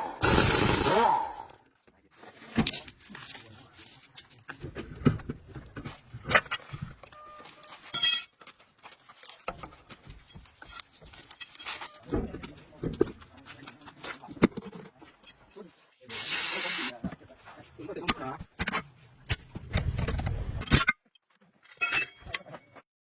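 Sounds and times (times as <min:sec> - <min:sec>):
metallic clinks of tools: 0:02.5 - 0:04.5.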